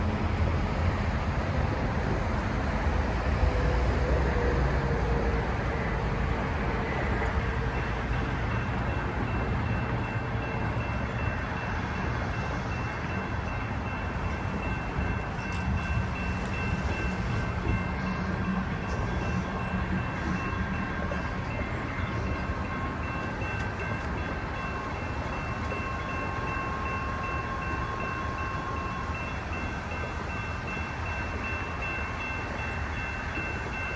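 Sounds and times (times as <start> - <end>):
train rumbling past: 0.0 - 33.9
crossing bell ringing: 3.4 - 33.9.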